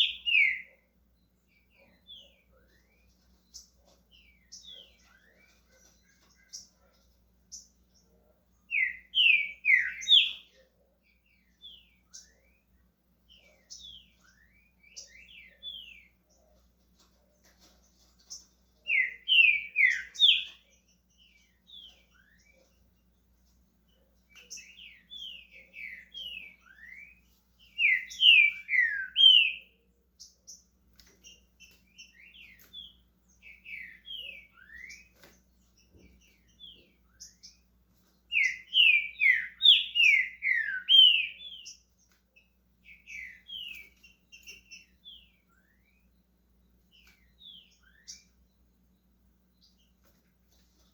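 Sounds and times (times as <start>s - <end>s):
bird singing whistled phrases: 8.7s - 10.4s, 18.9s - 20.5s, 27.8s - 29.7s, 38.3s - 41.8s.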